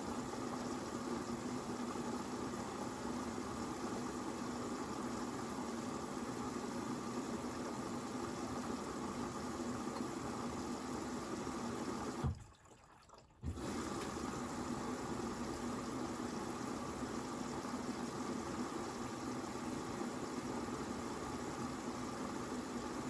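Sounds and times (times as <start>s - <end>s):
washing machine taking in water: 0.1s - 23.0s
water flow cutting off thump: 12.1s - 12.5s, 13.4s - 14.2s.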